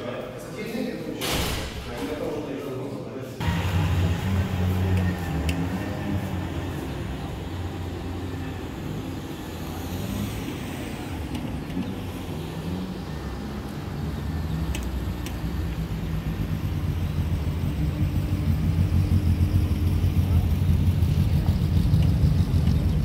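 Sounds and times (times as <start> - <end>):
car engine running at low revs: 3.4 - 23.0.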